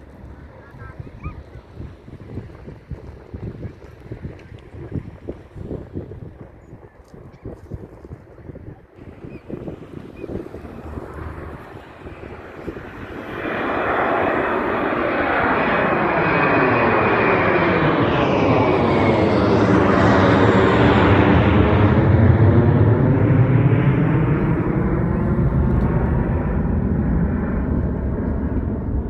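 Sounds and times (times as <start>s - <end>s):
airplane engines passing: 0.0s - 29.0s.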